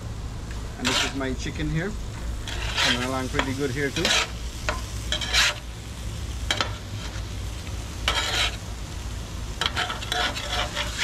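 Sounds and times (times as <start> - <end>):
food sizzling on a griddle: 0.4 - 11.0
metal spatula scraping pan: 0.8 - 1.3, 2.4 - 5.7, 8.0 - 8.6, 9.6 - 11.0.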